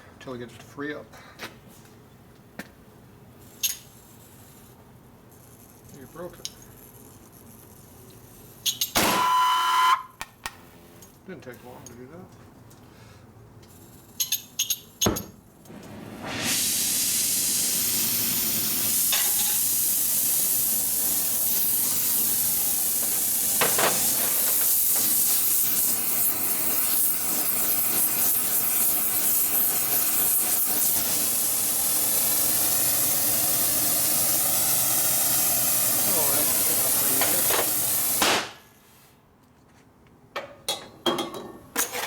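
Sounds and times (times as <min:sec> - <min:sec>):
torch burning with steady hiss: 0:15.6 - 0:38.9.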